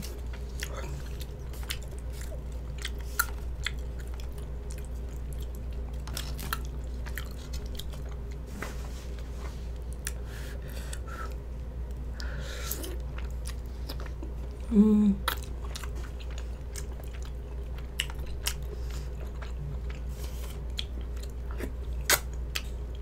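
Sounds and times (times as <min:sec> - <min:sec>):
person chewing sticky food: 0:00.0 - 0:08.5, 0:09.1 - 0:23.0
low steady hum: 0:00.0 - 0:23.0
person humming: 0:14.6 - 0:15.3.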